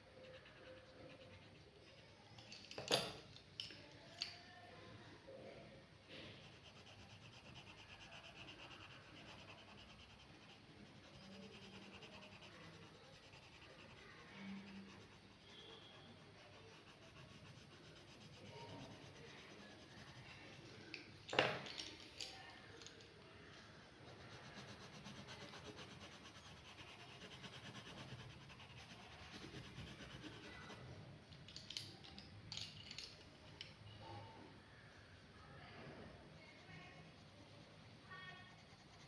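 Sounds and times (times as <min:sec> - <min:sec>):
pen scratching on paper: 0:00.1 - 0:02.2, 0:06.2 - 0:20.8, 0:23.9 - 0:31.0.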